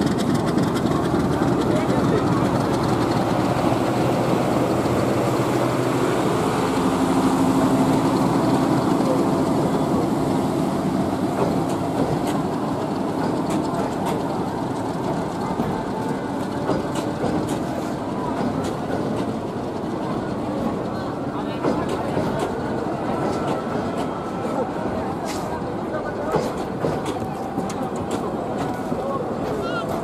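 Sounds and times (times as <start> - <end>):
train wheels rumbling and clattering: 0.0 - 30.0.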